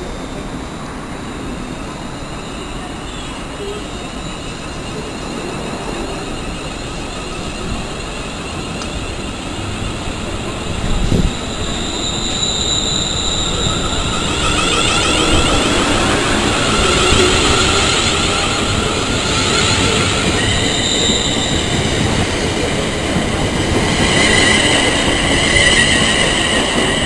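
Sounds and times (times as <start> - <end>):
train rumbling: 0.0 - 27.0.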